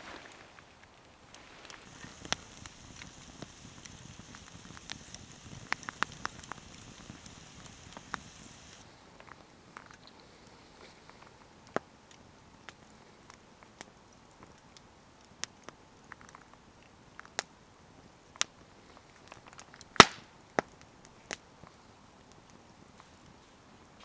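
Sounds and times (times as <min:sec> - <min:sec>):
wood fire crackling: 0:01.0 - 0:08.9.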